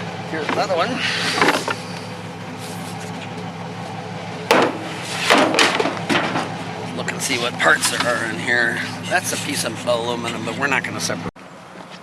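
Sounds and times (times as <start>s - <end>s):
low engine hum: 0.0s - 12.0s
scrap items knocking and clanking: 4.5s - 6.6s.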